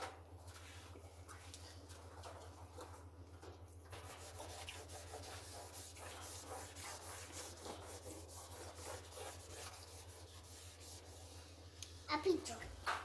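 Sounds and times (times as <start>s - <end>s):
brush scrubbing a surface: 3.9s - 11.7s.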